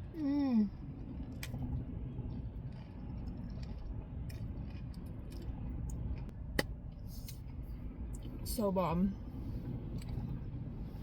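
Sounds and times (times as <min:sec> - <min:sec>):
steady low rumble: 0:00.0 - 0:11.0
chewing crisp lettuce: 0:02.4 - 0:06.3.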